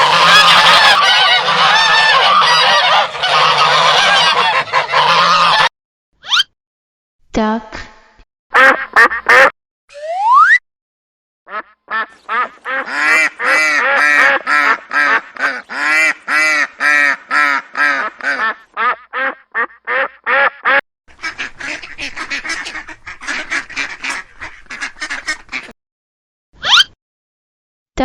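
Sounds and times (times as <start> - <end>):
duck quacking: 0.0 - 5.7, 8.5 - 9.5, 11.5 - 25.8
rising glide: 9.9 - 10.6.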